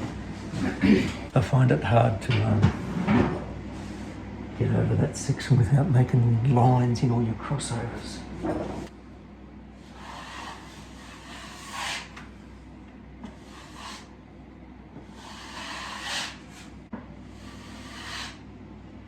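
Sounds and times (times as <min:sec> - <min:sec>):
knife scraping joint compound: 0:10.0 - 0:12.2, 0:15.1 - 0:16.7.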